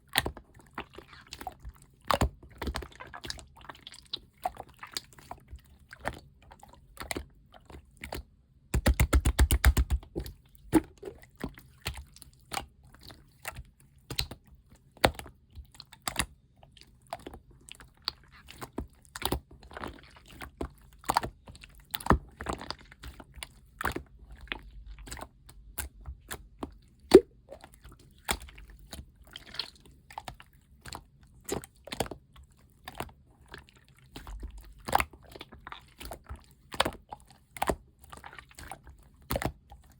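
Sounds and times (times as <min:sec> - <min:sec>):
slime squished by hand: 0:00.1 - 0:39.9
air bubbles popping: 0:10.7 - 0:11.3, 0:27.1 - 0:27.5.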